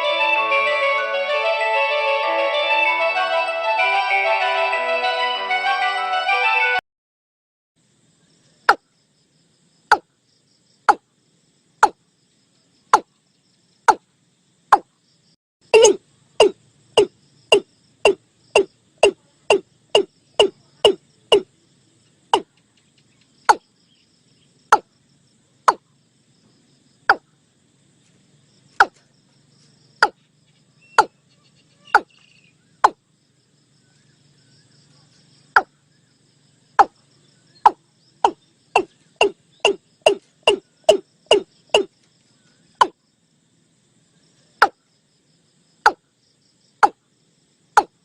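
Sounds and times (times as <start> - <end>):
faint insects buzzing: 7.8 - 48.0
bird calling hollow kok notes: 30.0 - 33.0, 36.8 - 43.0.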